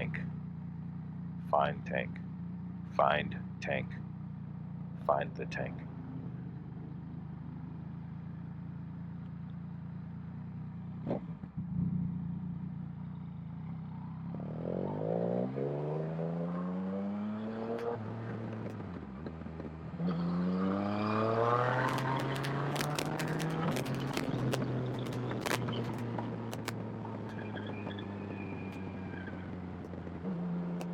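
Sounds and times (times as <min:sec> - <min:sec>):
motorcycle engine accelerating: 0:05.8 - 0:30.9
sharp clicks: 0:21.7 - 0:27.4.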